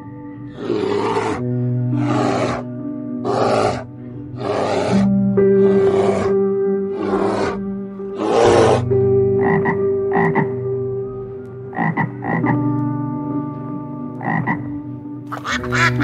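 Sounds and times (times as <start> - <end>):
background drone: 0.0 - 16.0
bear growling: 0.4 - 10.4
frog croaking: 9.4 - 10.6, 11.7 - 12.6, 14.2 - 14.7.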